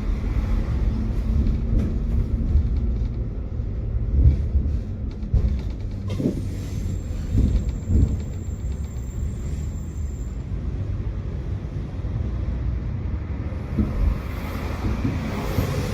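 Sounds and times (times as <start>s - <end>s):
tram rumbling on rails: 0.0s - 15.9s
knocks and thumps: 4.1s - 6.4s.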